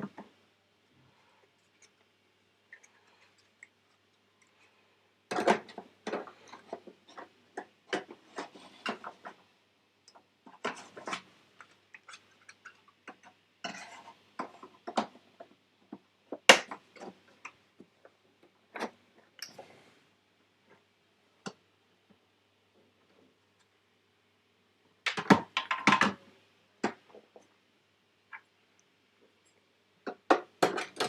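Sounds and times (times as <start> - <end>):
clicks and knocks on computer parts: 25.1 - 26.2, 30.1 - 31.0.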